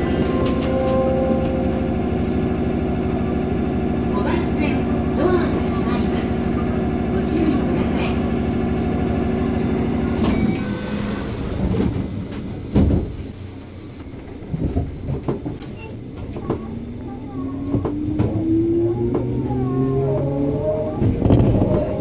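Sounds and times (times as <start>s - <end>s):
traction motor whine: 0.0s - 11.6s.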